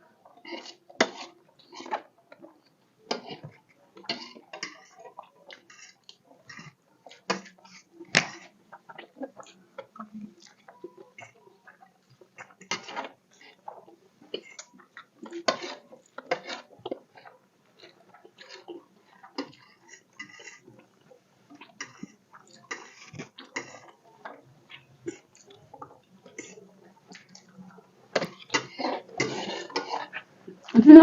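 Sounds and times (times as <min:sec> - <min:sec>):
soft chewing: 0:00.0 - 0:30.8
cutlery clinking on plates: 0:28.1 - 0:30.2.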